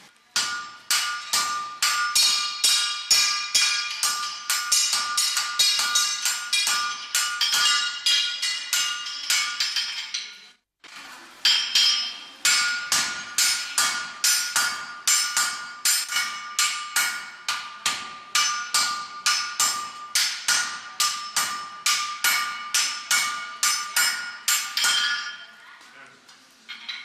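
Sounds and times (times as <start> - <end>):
hammer striking iron on anvil: 0.3 - 10.4, 11.5 - 25.5.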